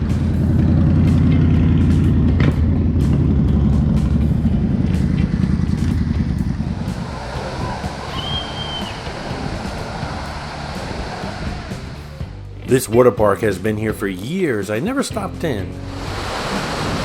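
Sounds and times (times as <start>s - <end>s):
vehicle engine rumbling: 0.0s - 12.7s.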